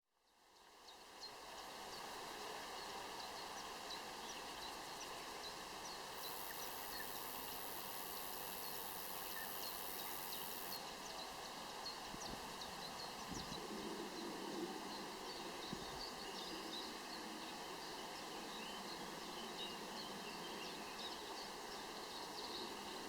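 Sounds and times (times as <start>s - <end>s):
faint outdoor hiss: 0.1s - 23.0s
high thin buzz: 6.2s - 10.8s.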